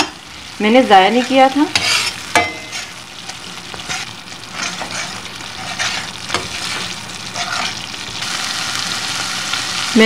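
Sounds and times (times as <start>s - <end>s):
masala sizzling in oil: 0.0s - 10.0s
spoon scraping pot bottom: 1.2s - 3.0s, 3.7s - 7.8s.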